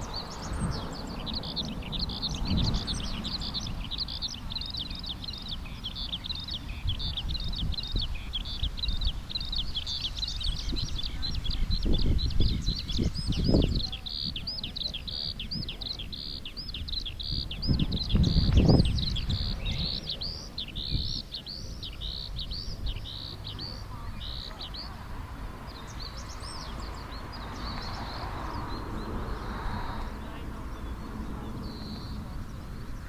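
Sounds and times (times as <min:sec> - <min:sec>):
small bird chirping: 0:00.0 - 0:25.1.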